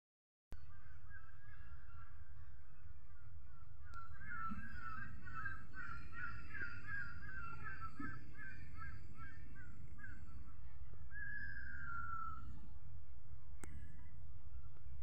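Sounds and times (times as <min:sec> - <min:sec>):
bird calling wavering notes: 0:03.5 - 0:12.6.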